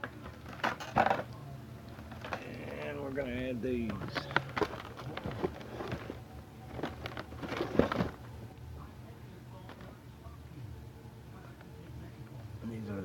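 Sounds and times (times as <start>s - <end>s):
firework packages clicking and knocking: 0.0s - 8.3s
packaging rustling: 2.0s - 8.3s.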